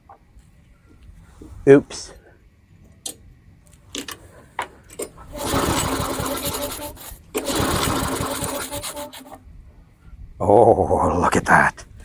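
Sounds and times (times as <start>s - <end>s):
lawn mower engine running: 5.2s - 9.4s.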